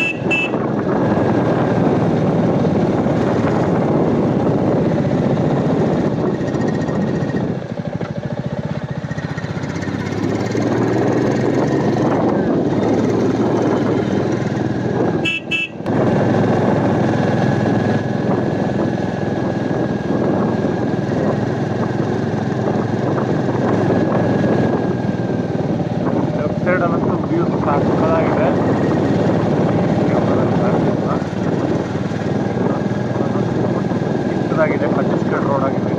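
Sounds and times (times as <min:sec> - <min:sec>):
short horn toots: 0:00.0 - 0:00.6, 0:15.2 - 0:15.9
motorcycle engine running: 0:00.0 - 0:35.9
wind rush: 0:00.3 - 0:07.6, 0:10.2 - 0:34.4.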